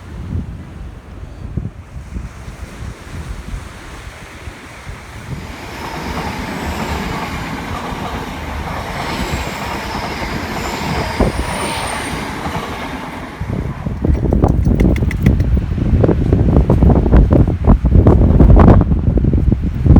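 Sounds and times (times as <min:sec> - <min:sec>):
train wheels rumbling on rails: 0:04.8 - 0:19.9
rail joint clicks: 0:05.4 - 0:15.6.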